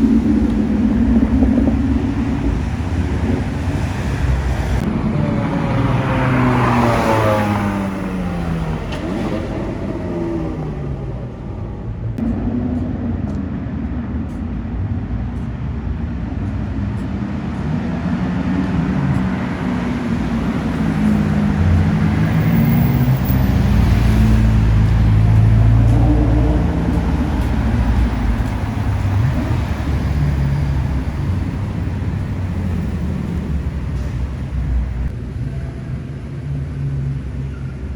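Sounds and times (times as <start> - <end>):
car passing by: 0.0 - 13.7, 15.3 - 37.9
car engine approaching: 0.0 - 37.9
road and tyre noise: 0.0 - 37.9.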